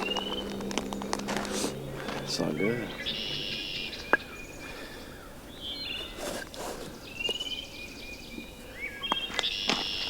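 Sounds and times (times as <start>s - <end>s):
songbirds chirping: 0.0s - 10.0s.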